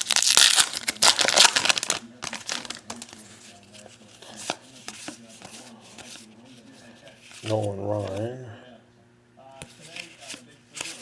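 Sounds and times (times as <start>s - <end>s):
foil wrapper crinkling: 0.0s - 4.6s
cards clicking and rustling: 0.0s - 6.3s, 9.6s - 11.0s.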